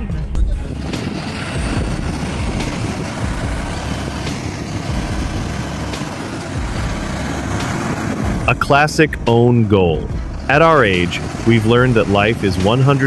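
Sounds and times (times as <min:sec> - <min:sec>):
road noise: 0:00.0 - 0:13.0
truck engine rumble: 0:00.0 - 0:13.0.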